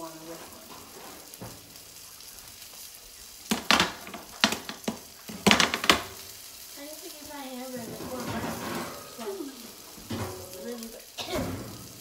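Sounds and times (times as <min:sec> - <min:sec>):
food sizzling in a pan: 0:00.0 - 0:12.0
cookware clanking and scraping: 0:00.3 - 0:01.6, 0:07.8 - 0:12.0.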